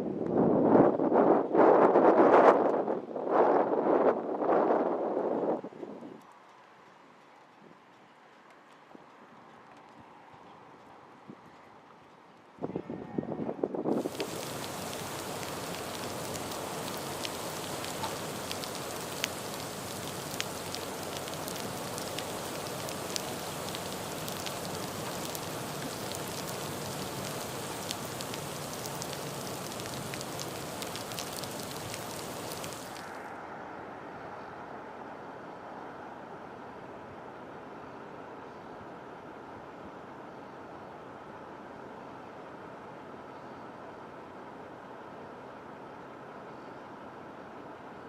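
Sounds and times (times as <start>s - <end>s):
low steady noise: 13.9s - 48.0s
heavy rain falling: 14.0s - 33.2s.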